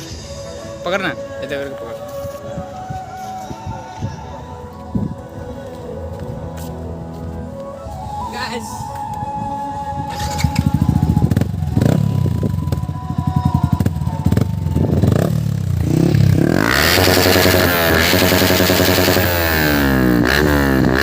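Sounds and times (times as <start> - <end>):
motorcycle exhaust revving: 10.1 - 21.0.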